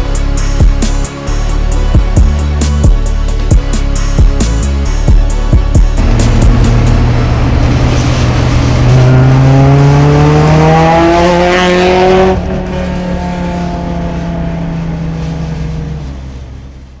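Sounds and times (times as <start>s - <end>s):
car engine revving: 5.9s - 16.5s.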